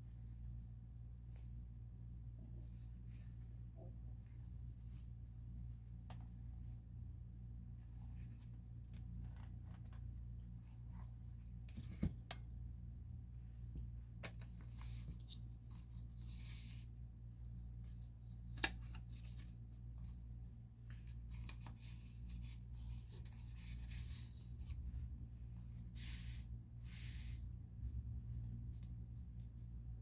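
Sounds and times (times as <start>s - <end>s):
steady low hum: 0.0s - 30.0s
paper pages rustling: 17.8s - 25.0s.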